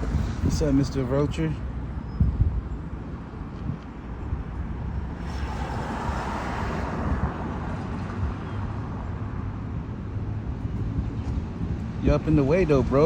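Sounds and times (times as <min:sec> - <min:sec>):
vehicle passing: 0:03.4 - 0:12.0.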